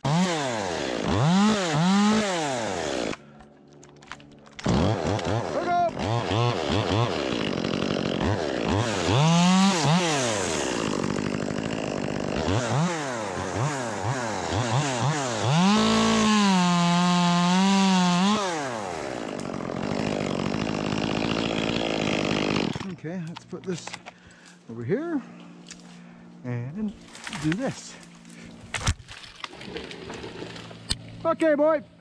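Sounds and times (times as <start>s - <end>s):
chainsaw revving: 0.0s - 3.3s, 4.6s - 23.0s.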